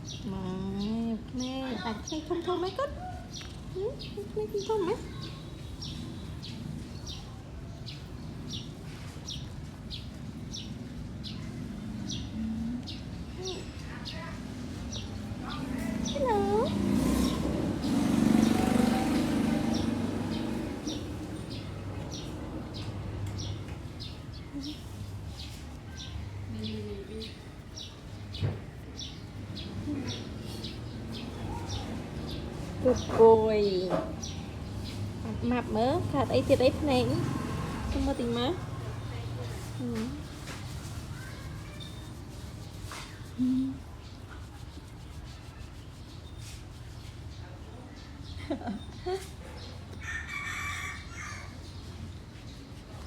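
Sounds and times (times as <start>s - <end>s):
small bird chirping: 0.0s - 8.7s.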